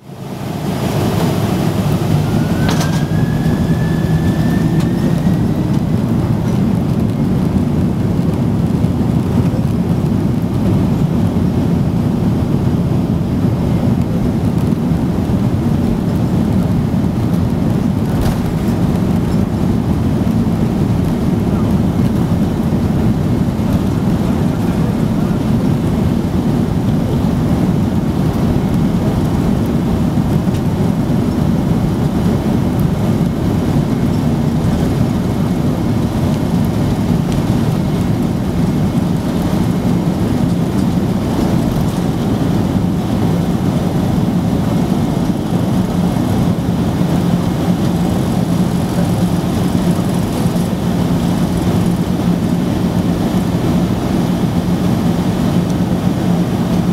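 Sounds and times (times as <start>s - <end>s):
low hum: 0.0s - 10.8s
jet cabin engine rumble: 0.0s - 56.9s.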